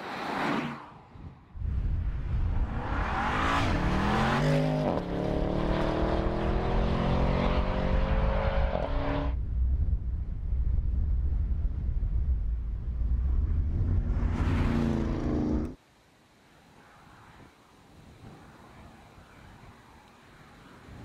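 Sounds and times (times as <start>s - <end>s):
car engine accelerating hard: 3.0s - 9.4s
low rumble: 9.3s - 15.8s.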